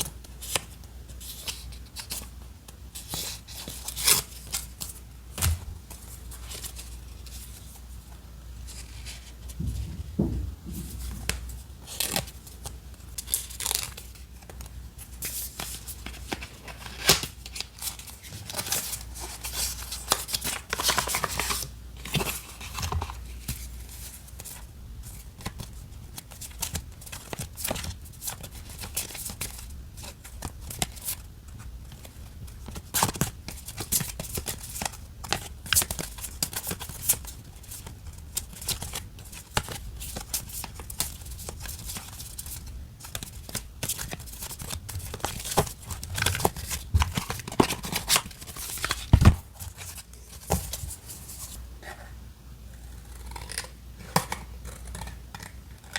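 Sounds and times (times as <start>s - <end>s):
paper rustling and crinkling: 8.7s - 51.6s.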